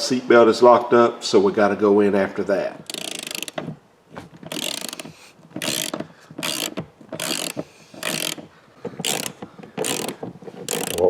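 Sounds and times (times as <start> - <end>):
ratchet wrench clicking: 2.8 - 3.7, 4.4 - 11.0.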